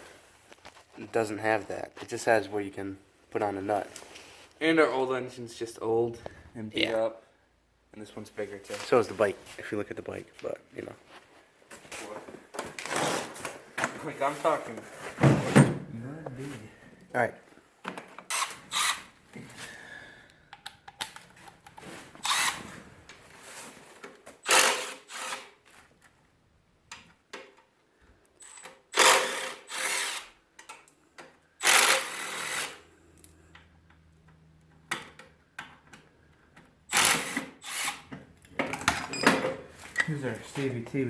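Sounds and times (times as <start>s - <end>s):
power drill bursts: 18.3s - 19.1s, 22.2s - 22.7s, 24.4s - 25.6s, 28.4s - 30.4s, 31.6s - 32.8s, 36.9s - 38.1s.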